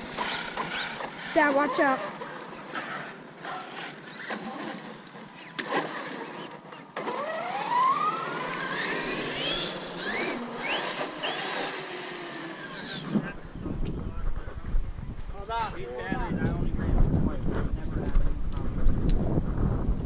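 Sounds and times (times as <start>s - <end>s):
electric motor whining: 0.0s - 13.8s.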